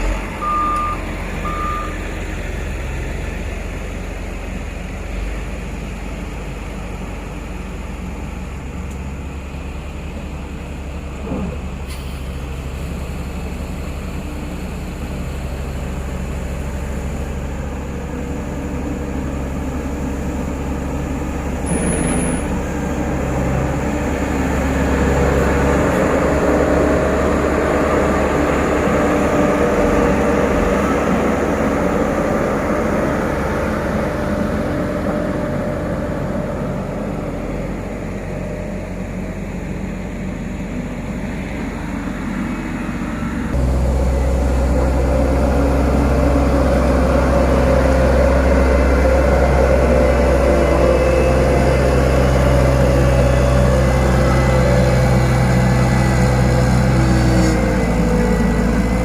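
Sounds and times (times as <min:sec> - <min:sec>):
heavy machinery diesel engine: 0:00.0 - 0:59.0.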